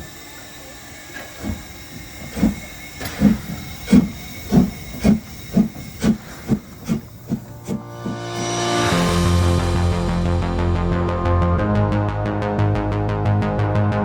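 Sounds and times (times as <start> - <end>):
steam hissing: 0.0 - 10.7
steam locomotive chuffing: 0.0 - 11.0.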